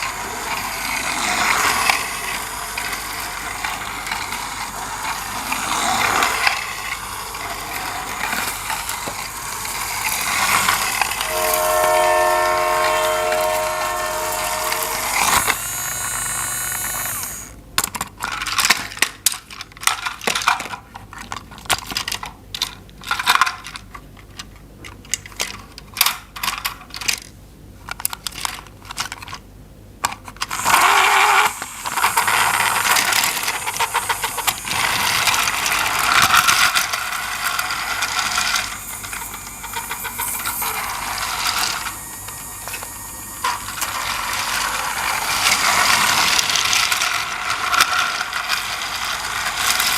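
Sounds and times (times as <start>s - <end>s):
mechanical whirr with gear rattle: 0.0s - 11.9s, 12.7s - 19.0s, 30.4s - 49.9s
plastic toy parts clicking: 15.3s - 29.4s, 30.0s - 42.0s, 42.6s - 49.9s.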